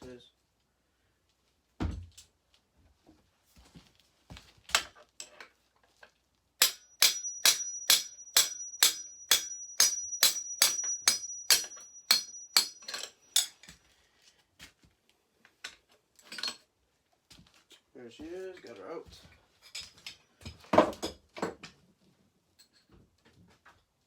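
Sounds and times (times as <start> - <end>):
hammer striking metal with ring: 6.6 - 13.7.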